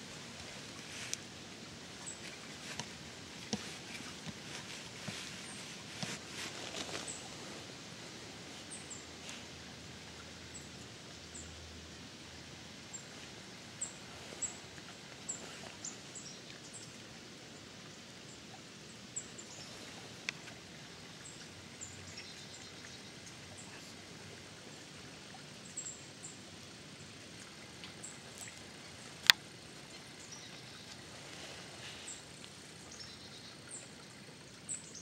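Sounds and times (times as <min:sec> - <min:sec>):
faint steady hiss: 0:00.0 - 0:35.0
faint clicks: 0:20.2 - 0:20.6, 0:27.4 - 0:31.0.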